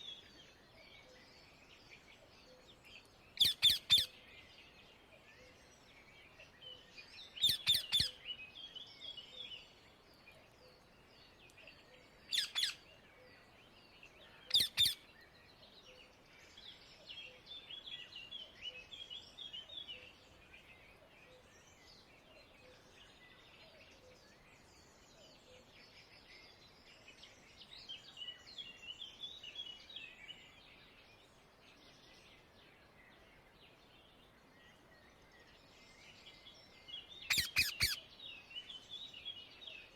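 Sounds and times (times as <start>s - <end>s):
bird chirping: 0.0s - 15.7s, 16.5s - 39.9s
parakeets screeching: 37.3s - 38.0s.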